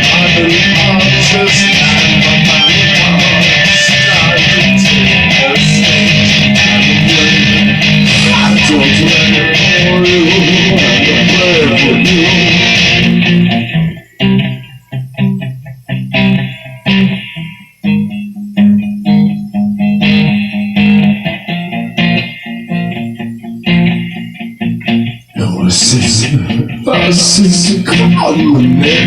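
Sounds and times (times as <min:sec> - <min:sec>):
electric guitar chords: 0:00.0 - 0:29.0.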